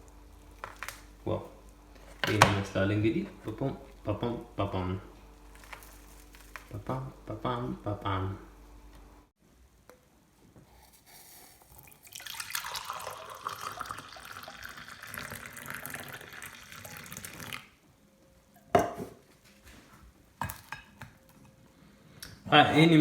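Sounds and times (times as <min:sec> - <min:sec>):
kitchen tap running: 0:11.1 - 0:17.7.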